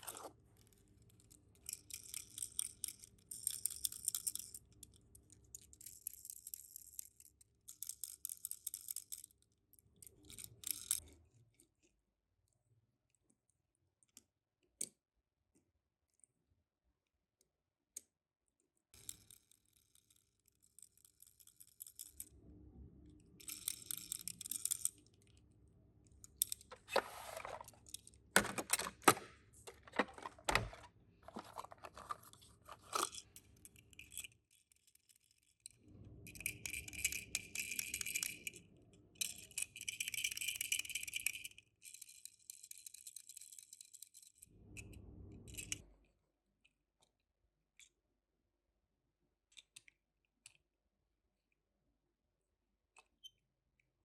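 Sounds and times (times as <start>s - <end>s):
plastic packaging crinkling: 28.4s - 33.2s.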